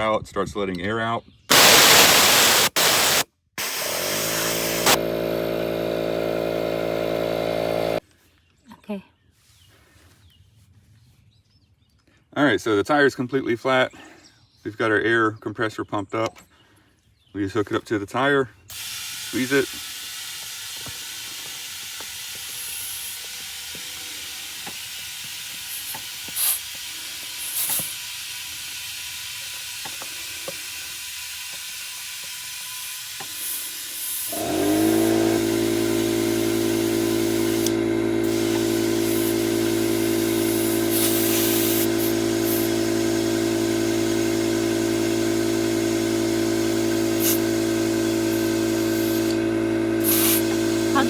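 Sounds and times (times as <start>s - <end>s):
air compressor motor running: 1.5s - 8.0s, 18.7s - 51.0s
compressed air hissing from hose: 1.5s - 8.0s, 18.7s - 51.0s.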